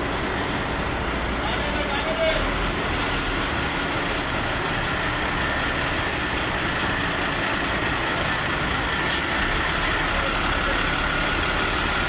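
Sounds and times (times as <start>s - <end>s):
machine running with ticking: 3.0s - 12.0s.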